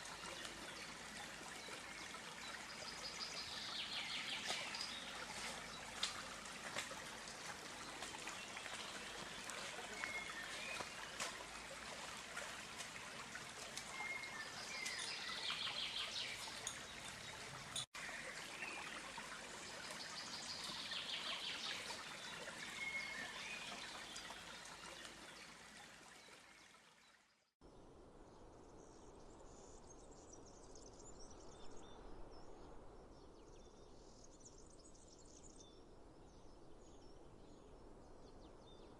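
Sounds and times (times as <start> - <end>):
birds calling and trilling: 0.0 - 17.9
faint outdoor ambience: 0.0 - 27.1
stream water running: 0.0 - 27.5.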